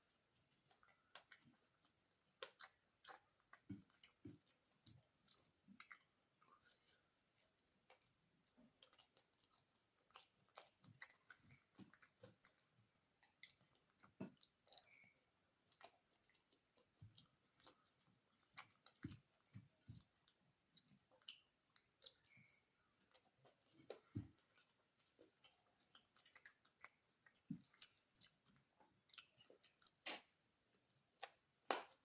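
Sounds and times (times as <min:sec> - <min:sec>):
wet chewing mouth clicks: 0:05.3 - 0:07.0, 0:08.7 - 0:30.4.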